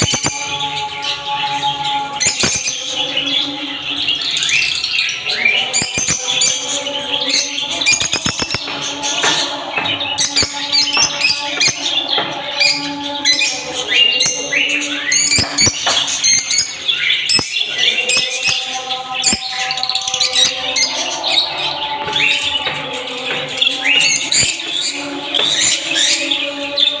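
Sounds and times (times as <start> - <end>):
budgerigars chirping and chattering: 0.0 - 27.0.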